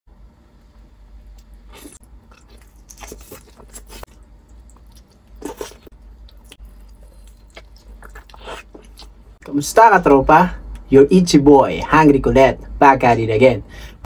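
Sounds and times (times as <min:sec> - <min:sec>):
person chewing meat: 0:01.3 - 0:09.4.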